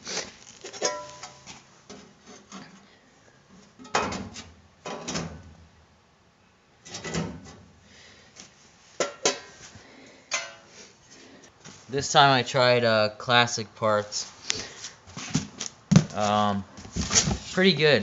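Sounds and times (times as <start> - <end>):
scraping knocks on bodywork: 15.1 - 16.2.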